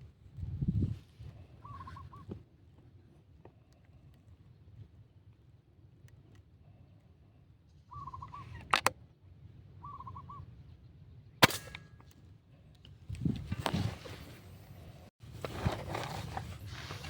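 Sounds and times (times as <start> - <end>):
air rifle shot: 11.4 - 11.9
rustling: 15.2 - 17.0.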